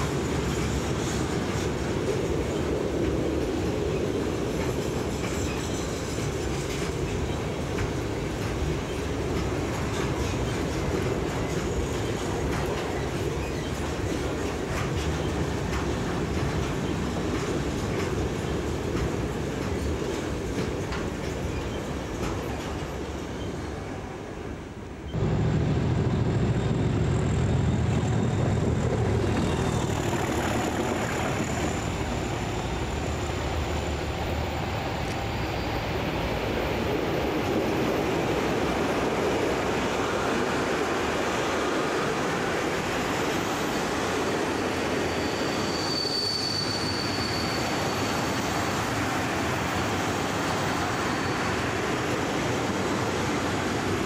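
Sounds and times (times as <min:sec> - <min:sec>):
diesel locomotive engine rumble: 0:00.0 - 0:45.9
freight wagons rumbling past: 0:25.1 - 0:39.6.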